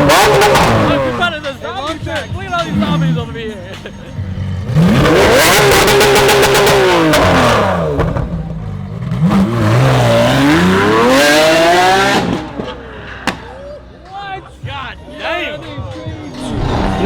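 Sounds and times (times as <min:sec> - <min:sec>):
car engine revving hard: 0:00.0 - 0:01.3, 0:02.6 - 0:03.4, 0:04.3 - 0:12.8, 0:16.3 - 0:17.0.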